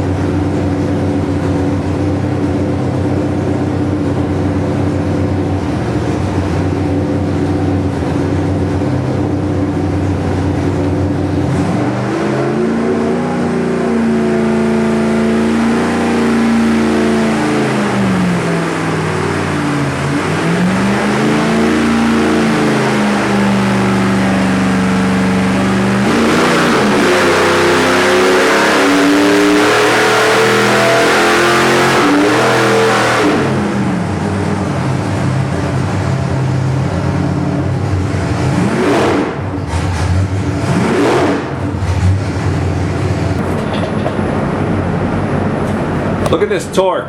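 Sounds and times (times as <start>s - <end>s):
engine revving under load: 10.9s - 35.3s, 38.0s - 46.8s.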